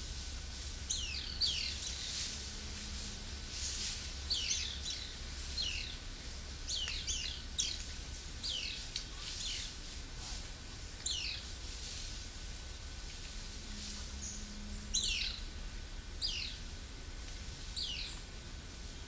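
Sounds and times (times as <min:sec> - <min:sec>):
birds whistling: 0:00.9 - 0:02.2, 0:03.6 - 0:06.0, 0:11.0 - 0:11.5, 0:14.1 - 0:15.5, 0:16.2 - 0:16.7, 0:17.8 - 0:18.2.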